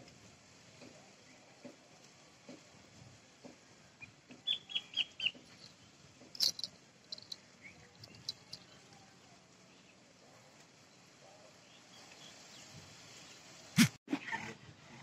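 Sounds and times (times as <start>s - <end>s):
small bird chirping: 4.0s - 8.9s.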